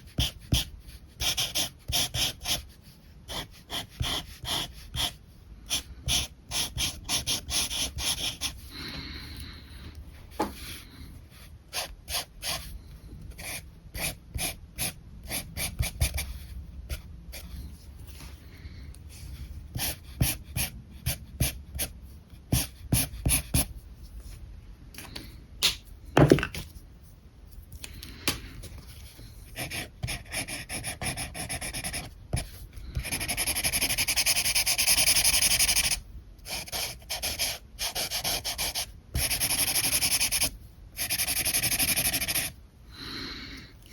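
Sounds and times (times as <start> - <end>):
marker scratching on paper: 0.0 - 8.7, 11.4 - 12.7, 13.3 - 17.7, 19.7 - 24.4, 29.6 - 42.6.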